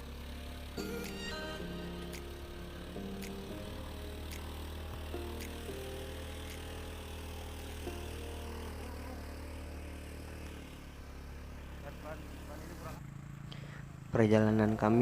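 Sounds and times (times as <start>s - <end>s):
soft background music: 0.0s - 10.6s
vehicle engine drone: 0.0s - 15.0s.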